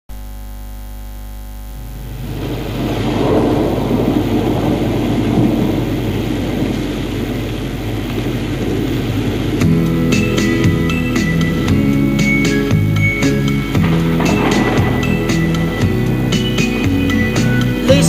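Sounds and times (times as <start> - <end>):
low hum: 0.1 - 5.4
rain and thunder: 2.0 - 18.0.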